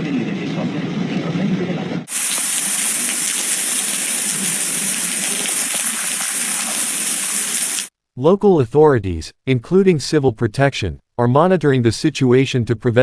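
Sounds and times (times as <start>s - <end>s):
storm water rushing hiss: 2.1s - 7.9s.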